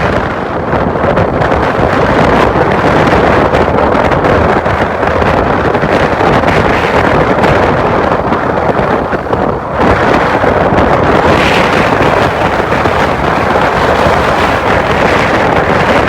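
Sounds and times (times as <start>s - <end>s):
motorcycle road noise: 0.0s - 16.0s
wind buffeting microphone: 0.0s - 16.0s.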